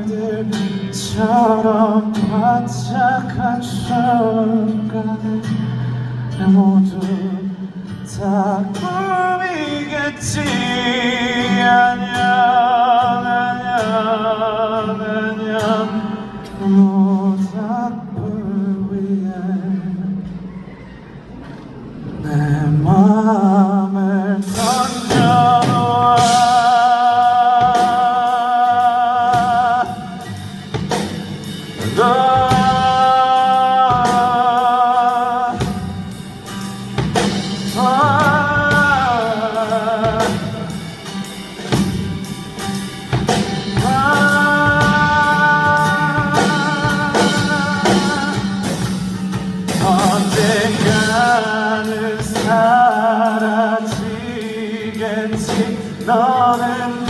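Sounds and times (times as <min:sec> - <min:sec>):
man singing with vibrato: 0:00.0 - 0:20.5, 0:22.2 - 0:57.0
band with drums and guitar: 0:24.4 - 0:57.0.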